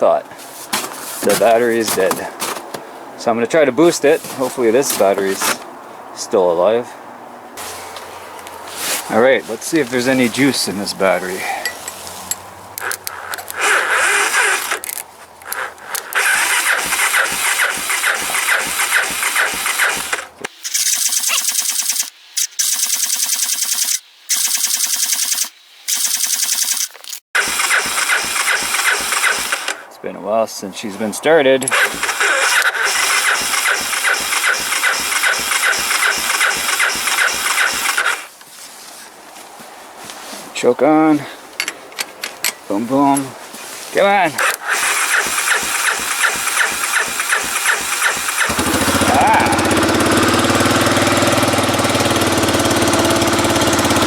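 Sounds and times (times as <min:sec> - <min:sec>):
electric starter cranking engine: 0:12.8 - 0:29.9, 0:31.7 - 0:38.3, 0:44.4 - 0:54.0.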